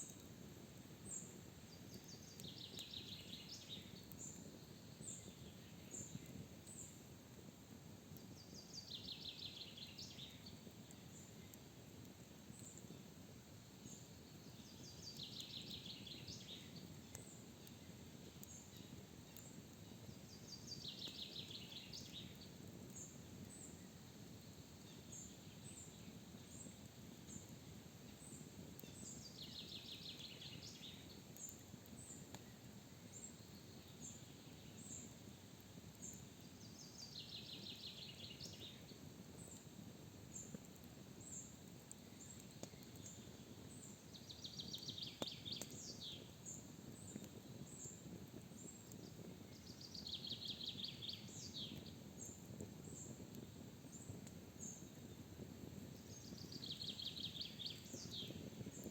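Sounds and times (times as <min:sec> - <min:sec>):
forest ambience hiss: 0:00.0 - 0:58.9
songbird trilled song: 0:56.0 - 0:58.8.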